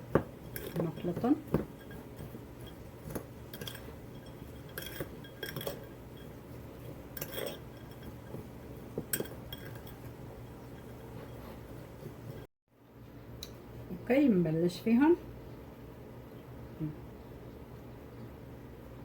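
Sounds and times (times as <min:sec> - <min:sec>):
spoon clinking against bowl: 0:00.2 - 0:11.4.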